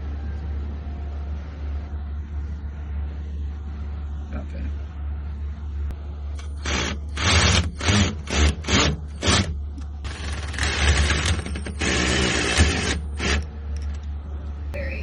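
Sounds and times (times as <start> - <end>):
steady low hum: 0.0 - 8.4, 13.5 - 15.0.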